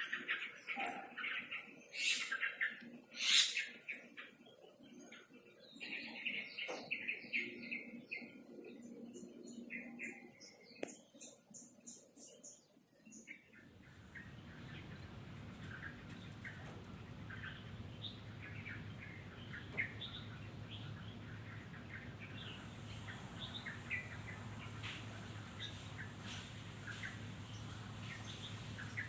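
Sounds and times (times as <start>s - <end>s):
small birds chirping: 0.0s - 29.0s
low background hum: 13.5s - 29.0s.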